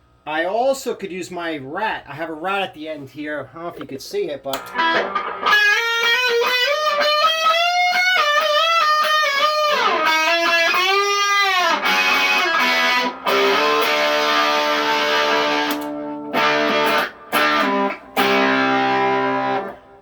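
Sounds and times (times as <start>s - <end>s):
distorted electric guitar: 4.5s - 20.0s.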